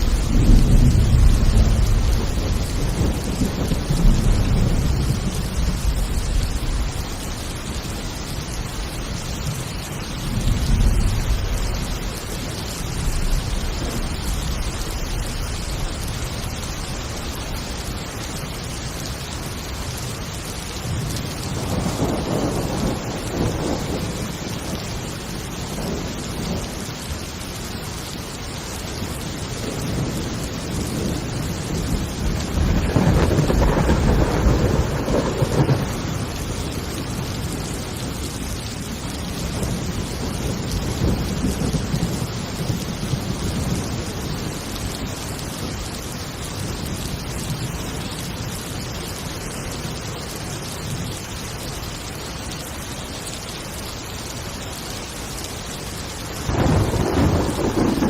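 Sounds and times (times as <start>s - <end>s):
rolling thunder: 0.0s - 7.6s, 10.2s - 17.0s, 20.9s - 26.8s, 29.0s - 45.8s, 56.4s - 58.0s
heavy rain: 0.0s - 58.0s.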